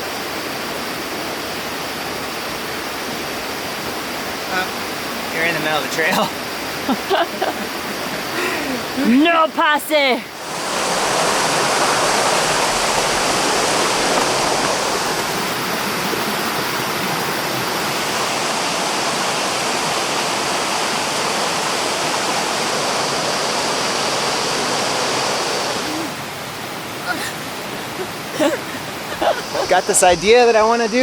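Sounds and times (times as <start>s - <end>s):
stream rushing over rocks: 0.0s - 31.0s.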